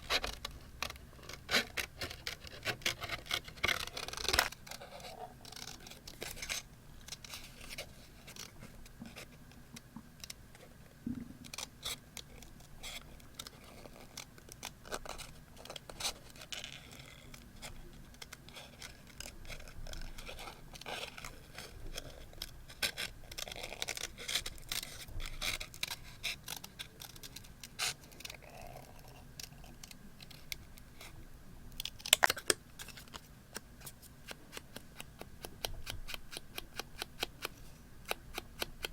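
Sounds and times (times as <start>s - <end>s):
scissors cutting paper: 34.2s - 38.9s.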